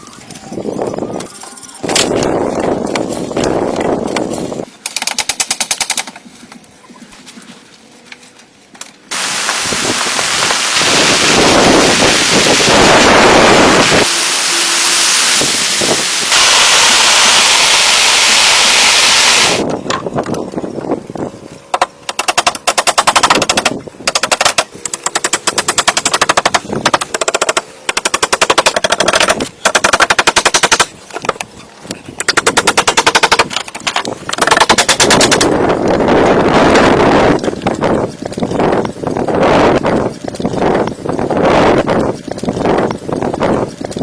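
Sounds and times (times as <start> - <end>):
rapid tool strikes on wood: 4.8 - 6.2, 21.7 - 31.4, 32.2 - 35.6
power tool cutting wood: 9.1 - 19.7.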